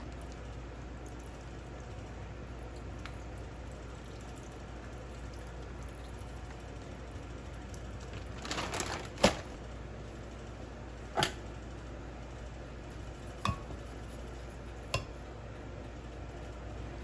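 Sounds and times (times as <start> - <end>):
sharp knocks of kitchen utensils: 13.4 - 13.8.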